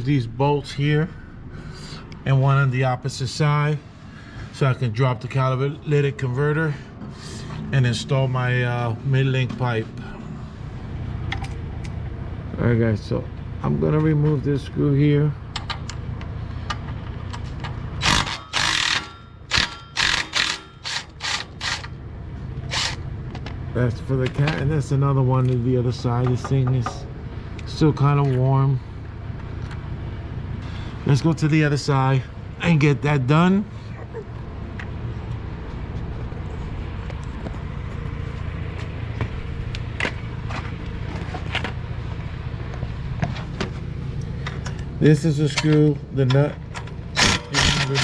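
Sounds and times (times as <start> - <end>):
vehicle engine rumble: 0.0 - 48.0
socket ratchet clicking: 18.0 - 21.9.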